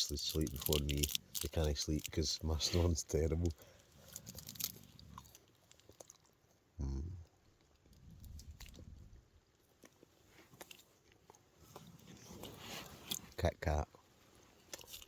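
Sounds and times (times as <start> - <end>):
chewing and crunching wafer: 0.0 - 13.4, 14.3 - 15.0
low hum-like voice: 6.8 - 7.2.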